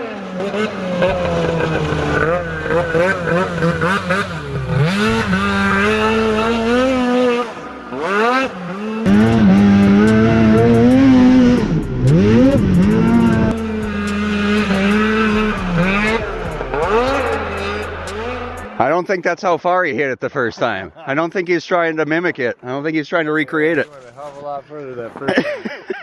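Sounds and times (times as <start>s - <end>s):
snowmobile engine revving: 0.0s - 18.9s.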